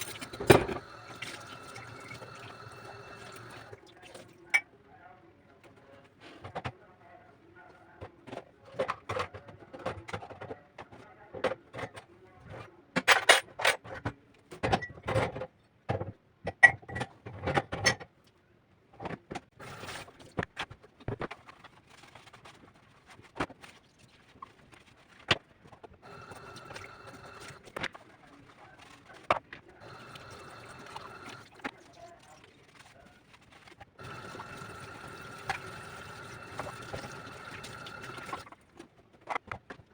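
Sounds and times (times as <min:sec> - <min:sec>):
household objects knocking and clattering: 0:00.0 - 0:00.9.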